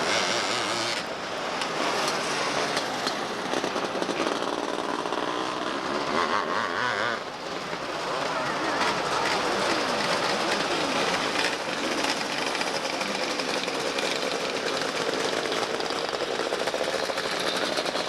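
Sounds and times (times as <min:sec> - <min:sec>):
race car engines passing: 0:00.0 - 0:18.0.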